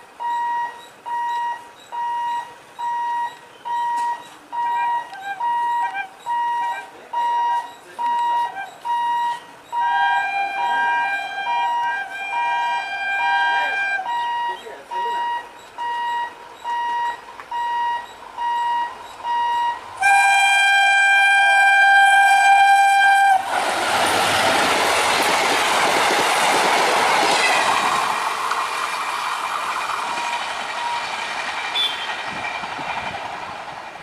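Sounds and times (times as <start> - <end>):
high-pitched beeps: 0.2 - 9.8, 14.1 - 19.9
locomotive horn blast: 3.7 - 14.5, 15.2 - 23.6, 31.8 - 32.2
train wheels rolling and clattering: 14.5 - 20.0, 23.0 - 34.0.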